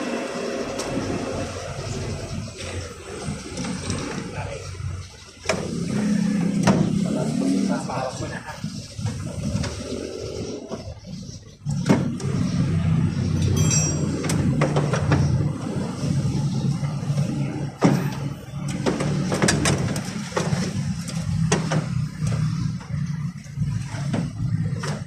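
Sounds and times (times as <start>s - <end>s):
vehicle engine running: 0.0s - 25.0s
sharp clicks and knocks: 13.4s - 15.4s, 17.8s - 23.1s.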